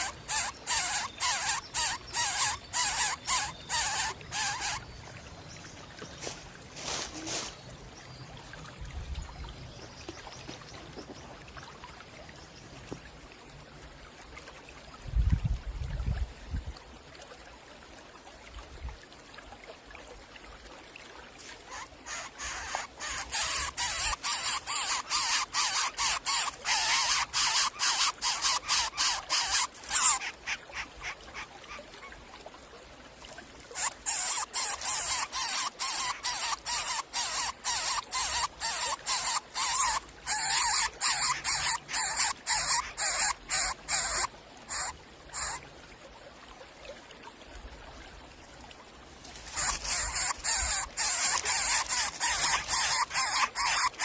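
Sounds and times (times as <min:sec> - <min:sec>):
hiss-like begging calls: 0:00.0 - 0:04.9, 0:21.4 - 0:32.1, 0:33.7 - 0:45.6, 0:49.3 - 0:54.0.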